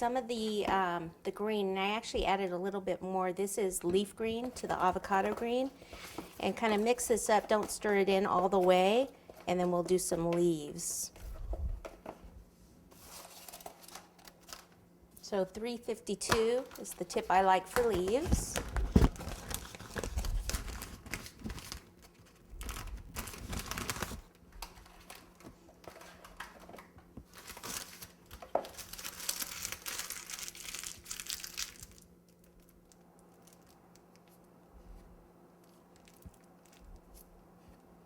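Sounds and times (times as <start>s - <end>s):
piping bag crinkling: 4.1s - 10.2s, 16.2s - 34.6s, 35.6s - 37.4s.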